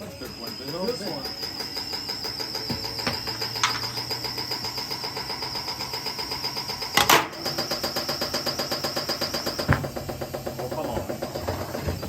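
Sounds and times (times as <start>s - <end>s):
washing machine drum knocking: 2.4s - 4.2s, 9.0s - 12.0s.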